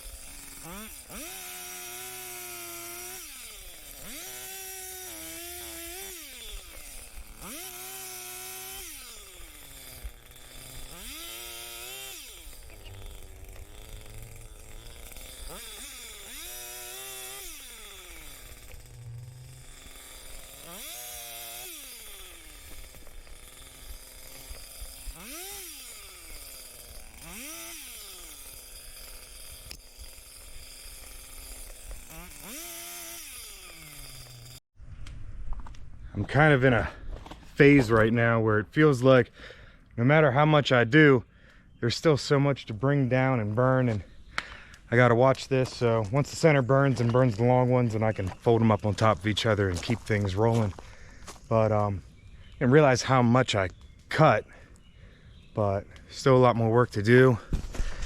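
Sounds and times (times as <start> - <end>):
chainsaw revving and cutting: 0.0 - 34.7, 42.0 - 54.8, 55.6 - 58.0.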